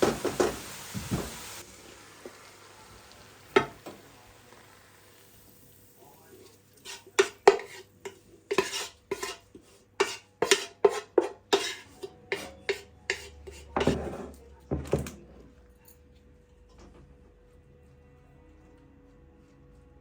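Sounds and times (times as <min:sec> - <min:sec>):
dishes and cutlery clattering: 0:06.8 - 0:09.4, 0:10.0 - 0:16.0.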